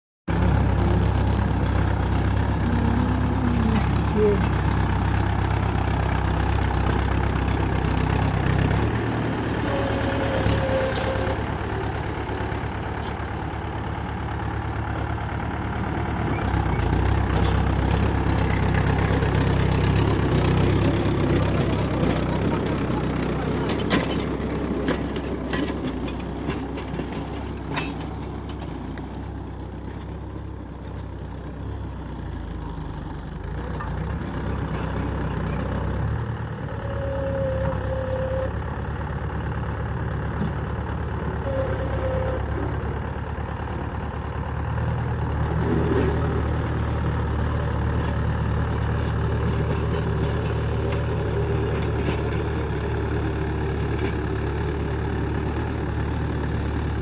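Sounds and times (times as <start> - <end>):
diesel tractor engine idling: 0.3 - 57.0
faint tones: 0.6 - 5.1.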